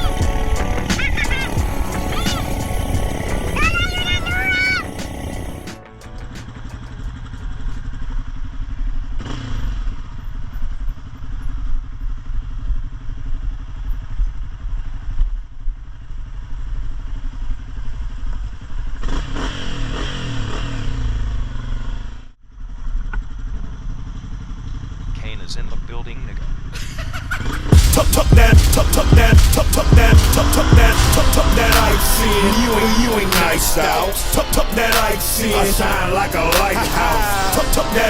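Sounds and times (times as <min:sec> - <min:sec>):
dirt bike engine surging: 0:00.0 - 0:13.7, 0:26.6 - 0:38.0.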